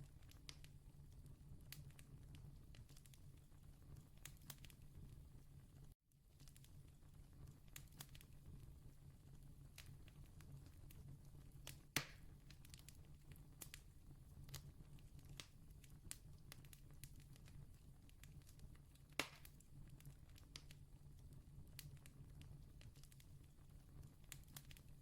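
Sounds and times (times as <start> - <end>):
campfire crackling: 0.2 - 5.2, 5.8 - 25.0
sharp pops of fire: 11.6 - 13.8, 18.2 - 19.6.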